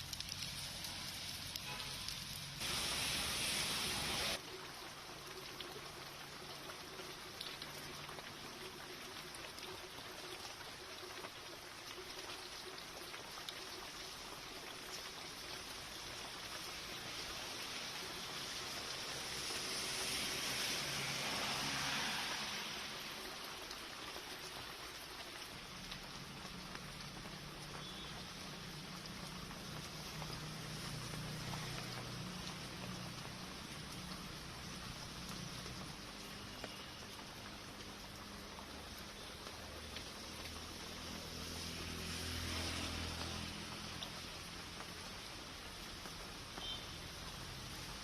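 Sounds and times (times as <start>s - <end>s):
heavy rain pouring: 0.0s - 48.0s.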